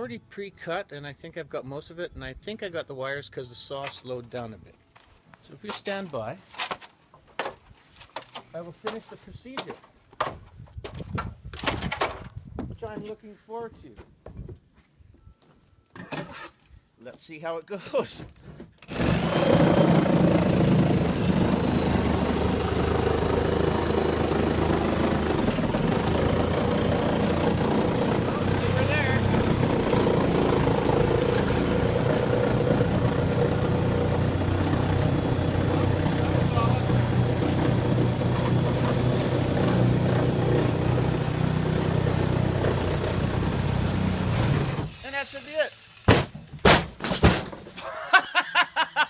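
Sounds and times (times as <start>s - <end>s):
reciprocating saw cutting: 18.8s - 46.1s.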